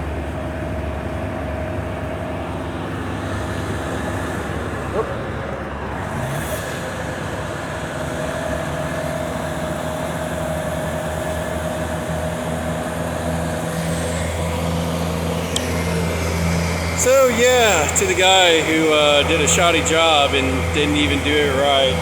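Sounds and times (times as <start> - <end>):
motor engine humming: 6.9 - 22.0.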